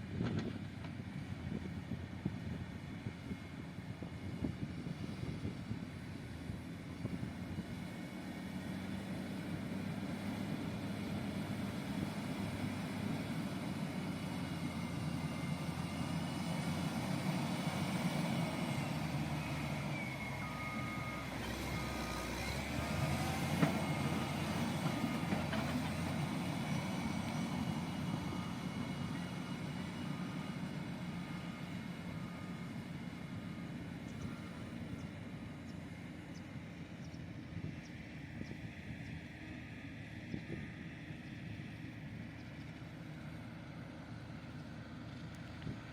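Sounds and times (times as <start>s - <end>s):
diesel engine running: 0.0s - 45.9s
reversing alarm beeping: 19.3s - 24.2s.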